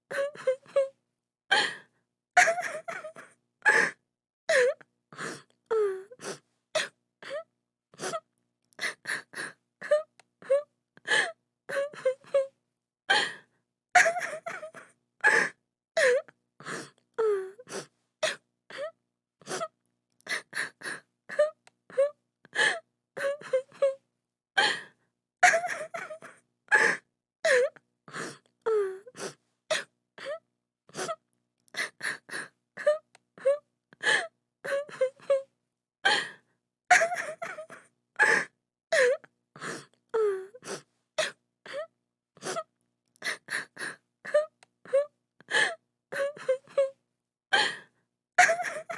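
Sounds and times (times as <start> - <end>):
woman sobbing and wailing: 0.1 - 0.9, 2.4 - 3.9, 14.0 - 16.3, 21.3 - 24.0, 25.4 - 27.8, 32.0 - 35.5, 36.9 - 39.2, 43.3 - 47.0, 48.4 - 48.9.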